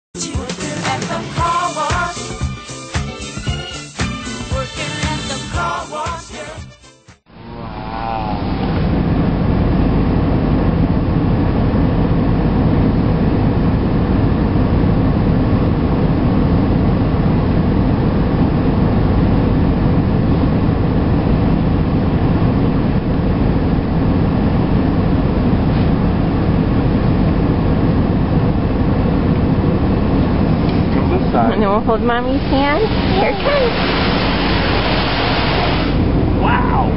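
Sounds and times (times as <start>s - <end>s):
automatic car wash running: 30.4s - 36.4s.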